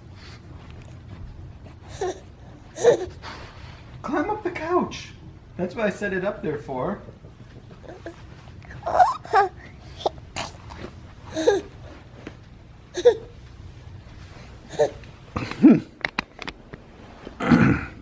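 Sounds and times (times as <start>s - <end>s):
baby babbling: 1.9s - 2.2s, 2.8s - 3.2s, 7.8s - 11.7s, 13.0s - 13.3s, 14.7s - 15.0s.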